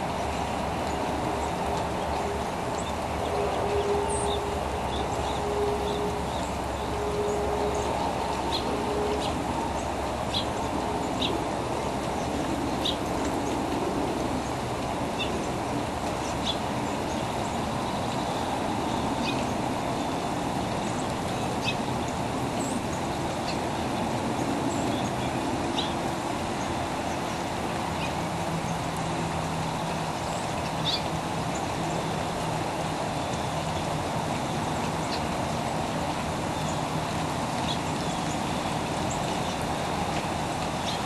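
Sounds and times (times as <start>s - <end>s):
birds chirping: 0.1s - 41.0s.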